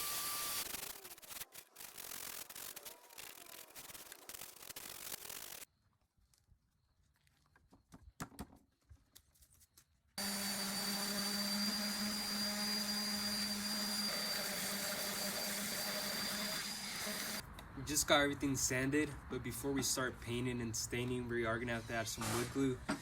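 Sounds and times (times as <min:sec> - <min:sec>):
vacuum cleaner running: 0:10.2 - 0:17.4.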